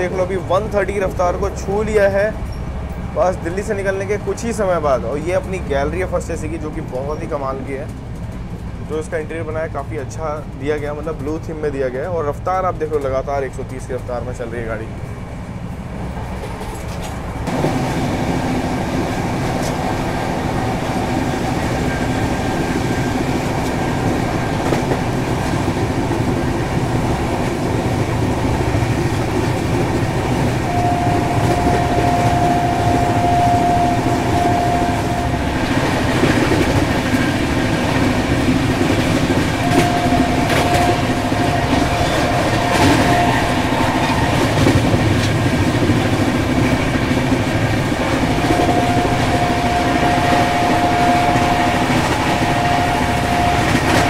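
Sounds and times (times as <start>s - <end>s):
train rumble and rail noise: 0.0s - 54.0s
thin steady whine: 30.5s - 35.7s, 48.0s - 54.0s.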